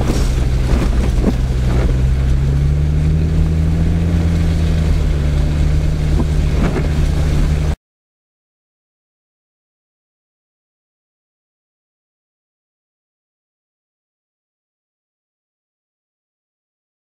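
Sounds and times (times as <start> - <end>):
vehicle engine running from inside cab: 0.0 - 7.8.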